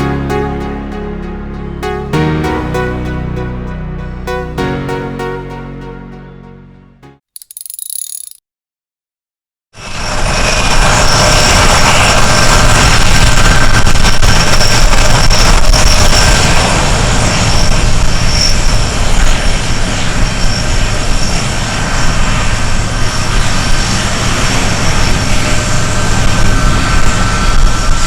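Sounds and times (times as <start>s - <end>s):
jet engines running loud: 9.9s - 28.0s.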